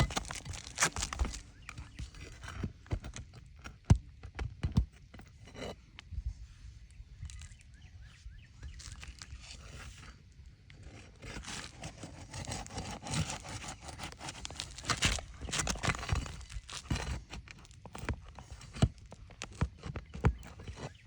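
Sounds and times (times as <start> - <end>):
shingles scraping and tearing: 0.0 - 5.8, 8.7 - 21.0.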